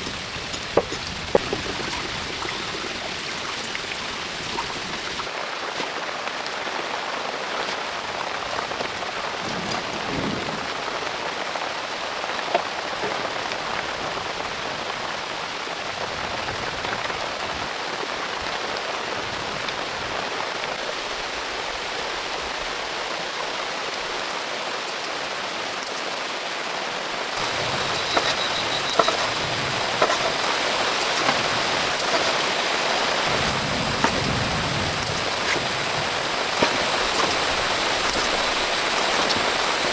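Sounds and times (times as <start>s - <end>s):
heavy rain falling: 27.2s - 39.9s.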